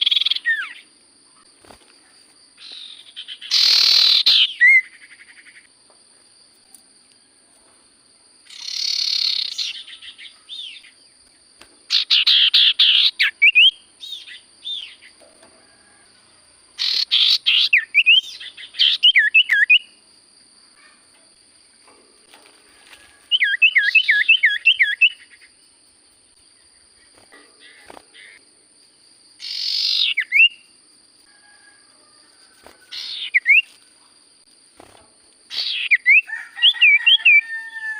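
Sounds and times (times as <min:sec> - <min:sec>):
bird singing chattering whistles: 0:02.6 - 0:05.6, 0:08.5 - 0:10.9, 0:16.8 - 0:19.9, 0:23.3 - 0:25.5, 0:29.4 - 0:30.6.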